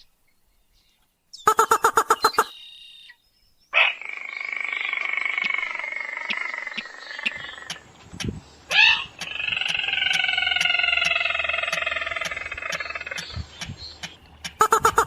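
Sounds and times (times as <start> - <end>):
rail bird calls: 0.8 - 15.0.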